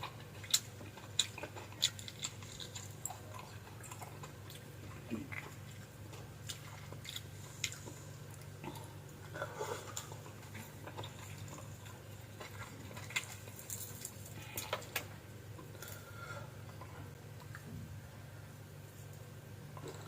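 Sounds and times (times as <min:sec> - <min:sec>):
person chewing with mouth clicks: 0:00.0 - 0:16.0
steady low hum: 0:00.0 - 0:20.0.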